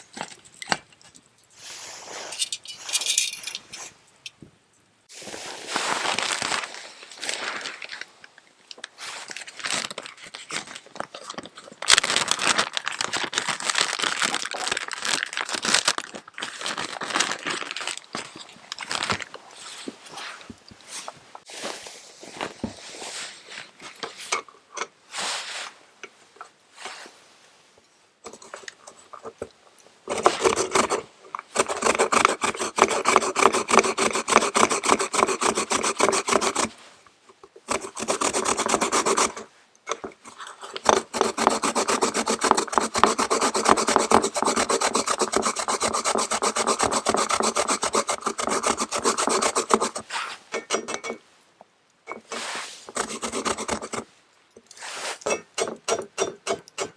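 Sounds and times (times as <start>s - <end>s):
radish rasping on grater: 30.1s - 31.0s, 31.6s - 36.7s, 37.7s - 39.4s, 40.3s - 50.1s, 52.4s - 54.0s.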